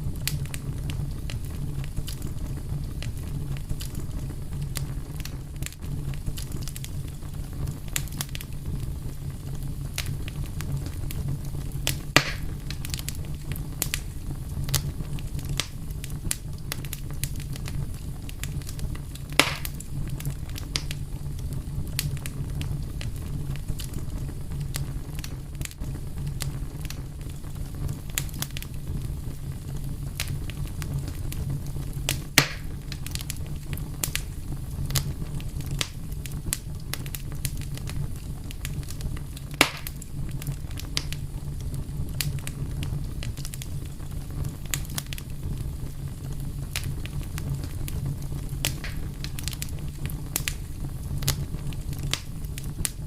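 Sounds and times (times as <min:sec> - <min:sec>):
wood fire crackling and popping: 0:00.0 - 0:53.0.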